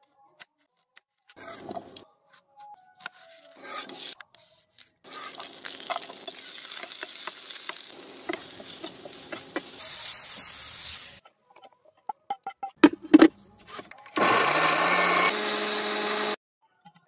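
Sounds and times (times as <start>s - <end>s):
wooden spatula stirring and clicking: 3.0s - 9.8s
onion and tomato sizzling in oil: 5.0s - 11.2s.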